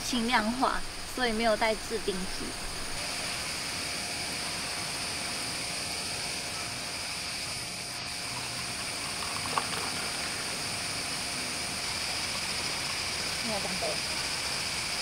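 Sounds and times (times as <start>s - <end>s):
high-pitched hiss: 0.0s - 15.0s.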